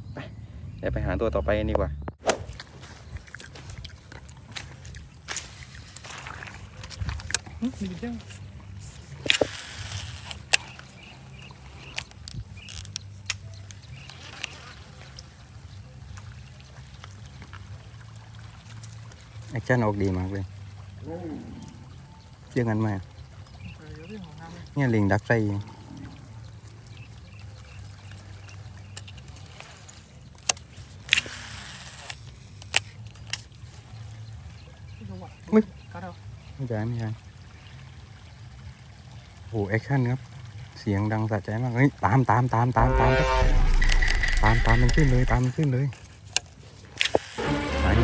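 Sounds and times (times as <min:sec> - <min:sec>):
lure splashing on water: 0:02.2 - 0:34.7, 0:42.3 - 0:48.0
fishing reel clicks: 0:09.2 - 0:14.6, 0:28.1 - 0:33.5
insect buzzing: 0:47.2 - 0:48.0.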